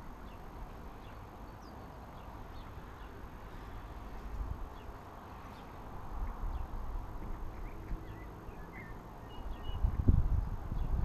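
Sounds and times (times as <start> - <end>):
faint bird chirps: 7.6 - 9.9.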